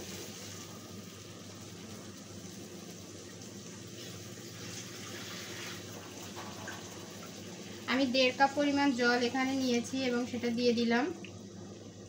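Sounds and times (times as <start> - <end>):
meat sizzling in hot oil: 0.0 - 11.0
low steady hum: 0.0 - 12.0.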